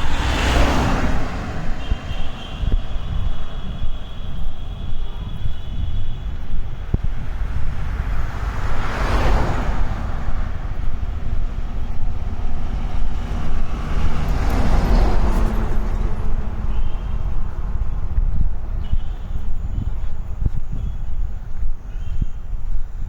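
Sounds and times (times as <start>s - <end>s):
vehicles passing on road: 0.0s - 23.0s
steady low rumble: 1.1s - 8.8s, 9.6s - 22.9s.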